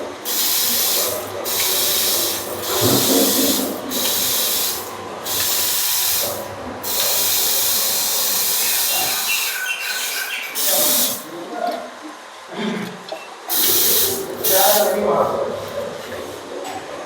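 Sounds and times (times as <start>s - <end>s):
water spraying with hiss: 0.0s - 11.3s, 13.5s - 15.2s.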